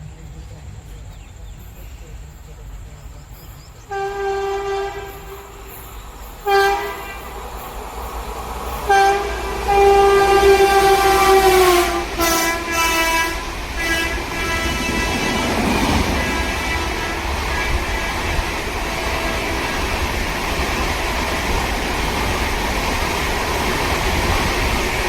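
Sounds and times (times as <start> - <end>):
train rumble: 0.0 - 25.0
locomotive horn blasts: 3.9 - 5.7, 6.4 - 7.3, 8.9 - 20.0.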